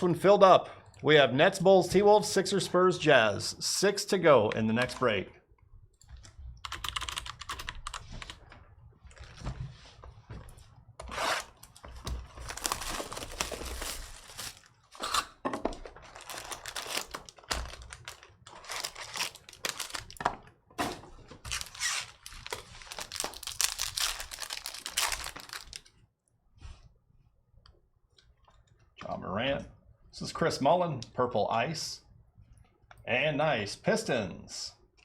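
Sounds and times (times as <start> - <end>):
foil wrappers tearing and crumpling: 11.6 - 15.2, 16.0 - 20.2, 21.5 - 25.9.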